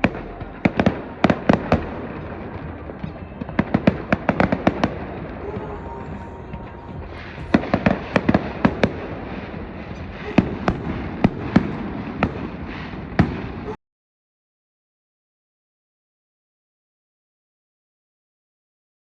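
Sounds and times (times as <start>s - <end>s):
firecracker pops and bangs: 0.0s - 13.8s
steady rushing noise: 0.0s - 13.8s.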